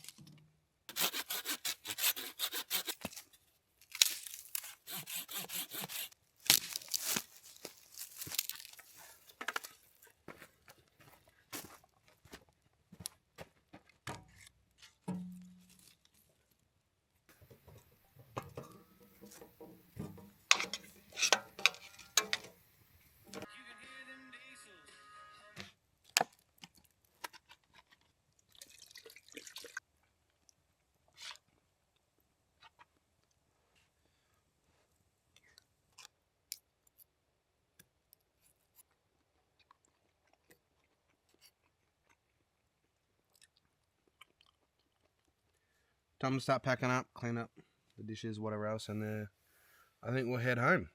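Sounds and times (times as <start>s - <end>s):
sharp clicks and knocks: 17.4s - 22.6s
person chewing and crunching: 38.8s - 45.6s.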